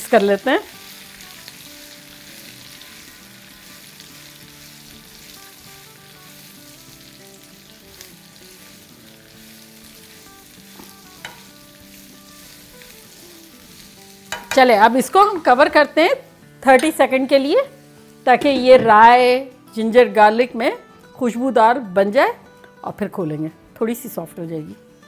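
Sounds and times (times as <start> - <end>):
vegetables sizzling in hot oil: 0.0 - 19.9
spatula clicking against pan: 14.3 - 14.7.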